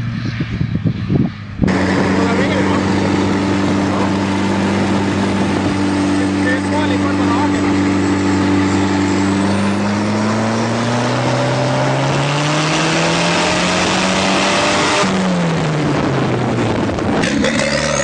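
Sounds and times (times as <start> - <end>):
tractor engine running hard: 1.6 - 18.0.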